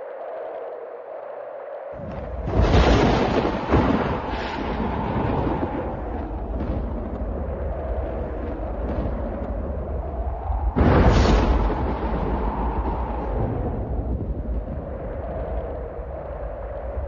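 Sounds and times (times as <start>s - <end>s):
thunder crack and rumble: 2.0s - 17.0s.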